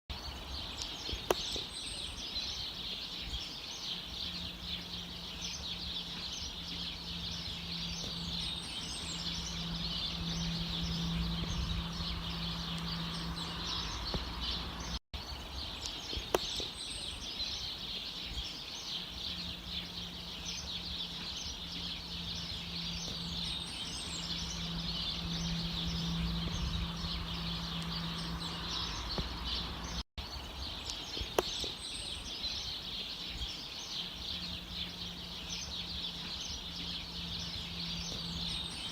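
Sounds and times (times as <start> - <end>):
many small birds chirping: 0.1 - 38.9
low hum and rumble: 4.2 - 15.7, 19.3 - 30.0, 34.4 - 38.9.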